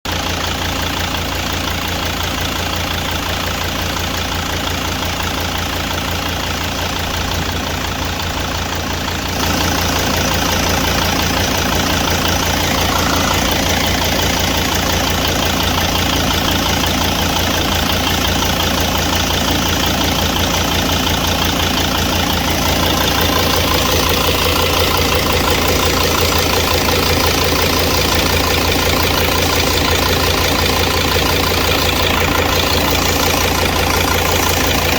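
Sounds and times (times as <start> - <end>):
van engine idling: 0.0 - 34.9.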